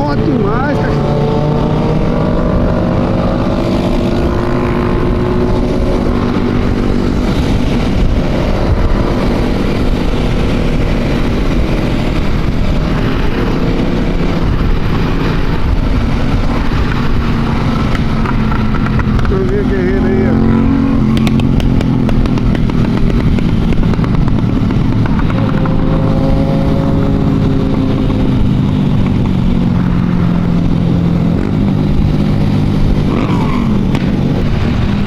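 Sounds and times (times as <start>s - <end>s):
motorcycle engine running: 0.0s - 35.0s
wind noise from riding: 0.0s - 35.0s.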